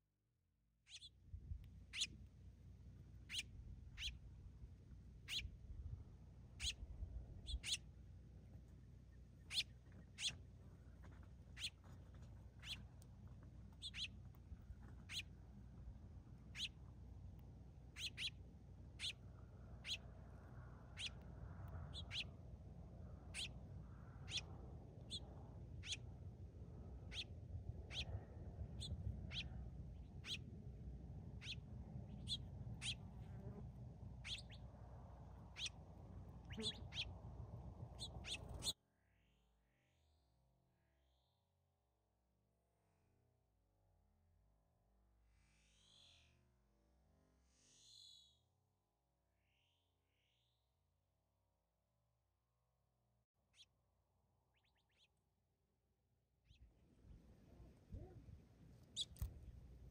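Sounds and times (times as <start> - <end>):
bird chirping: 0.9 - 1.2, 1.9 - 2.2, 3.3 - 4.2, 5.2 - 5.6, 6.6 - 6.8, 7.4 - 7.9, 9.0 - 10.5, 11.6 - 11.8, 12.6 - 12.9, 13.8 - 14.2, 15.0 - 15.3, 16.5 - 16.8, 18.0 - 18.4, 19.0 - 19.2, 19.8 - 20.1, 20.9 - 21.2, 21.8 - 22.3, 23.3 - 23.6, 24.2 - 26.1, 27.1 - 30.6, 31.3 - 33.2, 34.2 - 34.8, 35.4 - 37.2, 37.9 - 38.8, 45.5 - 46.4, 53.5 - 53.8, 54.5 - 55.2, 58.8 - 59.3
faint low rumble: 0.9 - 41.0, 56.5 - 59.9.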